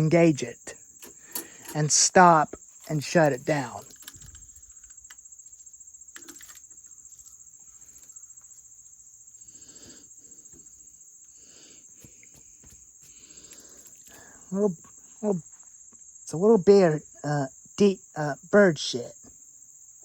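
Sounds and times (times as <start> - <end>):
crickets chirping: 0.0 - 20.0
faint scuffs and rustles: 11.9 - 14.2.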